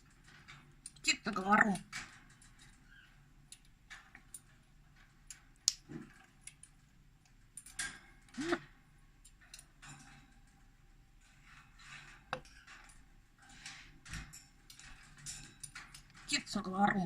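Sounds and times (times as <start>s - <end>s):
parrot calls: 8.3s - 8.7s.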